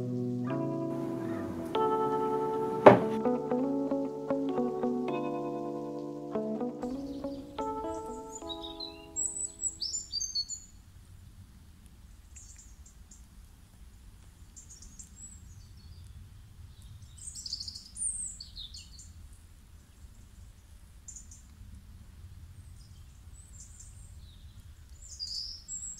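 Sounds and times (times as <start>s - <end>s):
small birds chirping: 6.8s - 10.6s.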